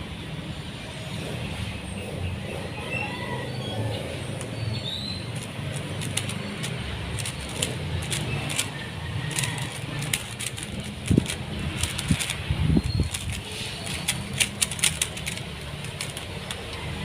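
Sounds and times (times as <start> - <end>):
puzzle cube plastic clicks: 4.3 - 17.0.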